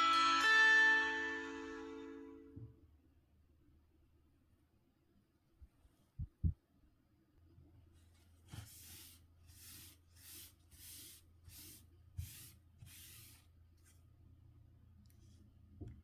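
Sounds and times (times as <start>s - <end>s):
faint rubbing strokes on phone: 7.9s - 14.1s.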